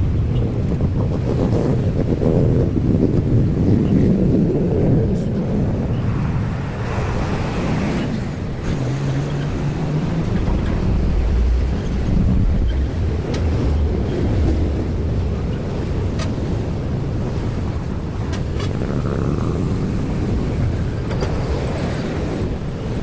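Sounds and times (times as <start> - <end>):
low rumble of passing vehicles: 5.0 - 23.0.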